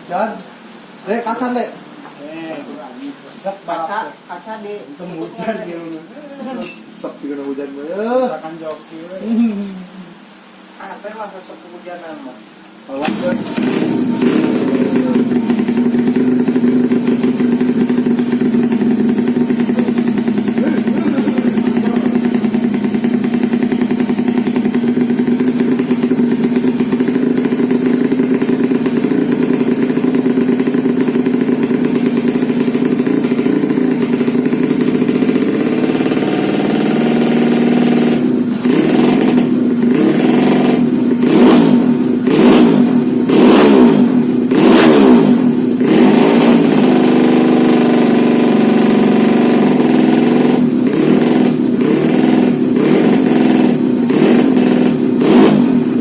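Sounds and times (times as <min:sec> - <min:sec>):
motorcycle engine idling and revving: 0:12.9 - 0:56.0.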